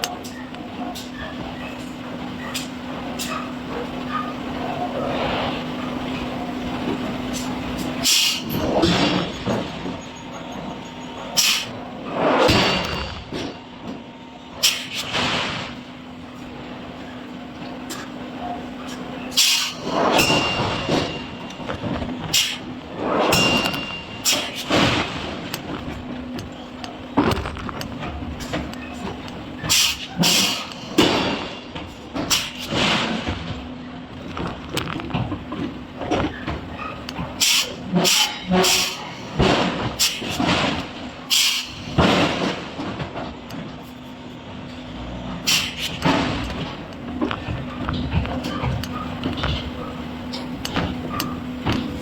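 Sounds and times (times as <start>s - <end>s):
machinery rumbling: 0.0s - 52.0s
machinery short sharp hiss: 41.3s - 41.8s.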